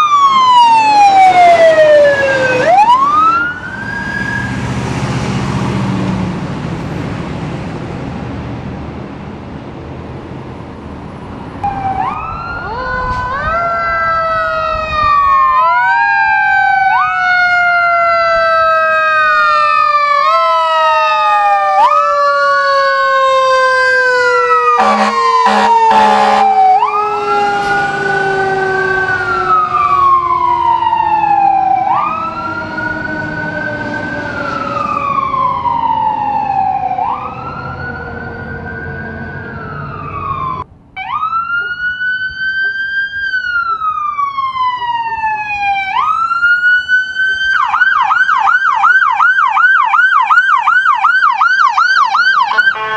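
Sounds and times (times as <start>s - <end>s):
mechanical siren winding down: 0.0s - 5.8s, 11.6s - 52.8s
electronic wail sirens: 0.0s - 6.1s, 11.6s - 52.9s
short horn blasts: 24.8s - 29.3s, 52.5s - 52.9s
heavy engine rumble: 24.8s - 30.9s.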